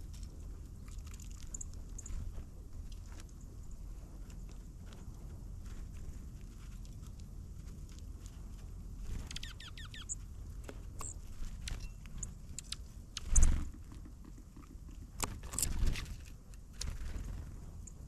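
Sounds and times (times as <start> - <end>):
light taps and pecks: 0.0 - 18.0
birds chirping: 9.2 - 10.2, 11.8 - 16.0.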